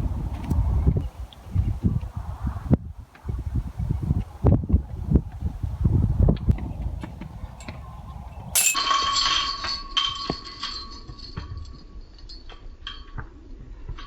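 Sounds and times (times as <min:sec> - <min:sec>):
wind rumble on microphone: 0:00.0 - 0:08.6
chains jingling: 0:08.6 - 0:08.9
disc clanging on metal basket: 0:08.6 - 0:11.6.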